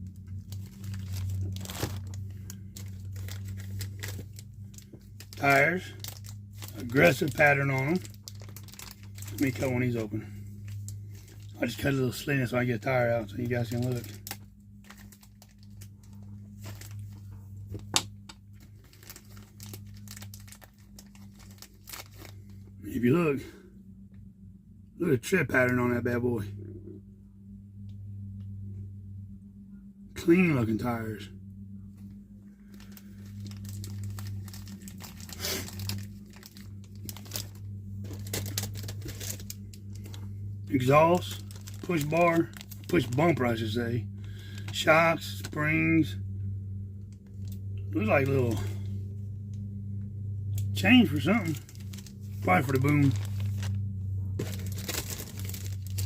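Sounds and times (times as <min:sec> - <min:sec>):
plastic bag crinkling: 0:00.0 - 0:22.7, 0:32.6 - 0:45.6, 0:47.2 - 0:48.9, 0:50.9 - 0:56.0
steady low hum: 0:00.0 - 0:56.0.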